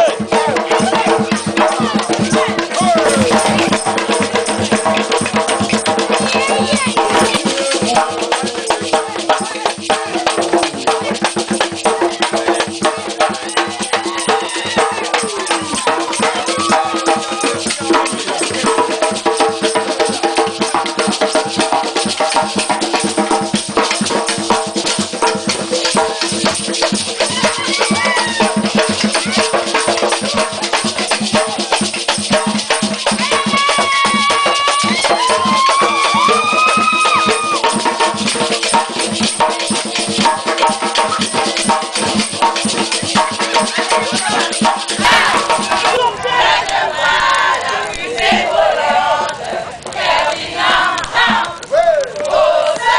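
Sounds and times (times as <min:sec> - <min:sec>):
voices singing along: 0:00.0 - 0:05.1, 0:43.1 - 0:52.9
shakers: 0:00.0 - 0:46.0
hand drums: 0:00.0 - 0:52.9.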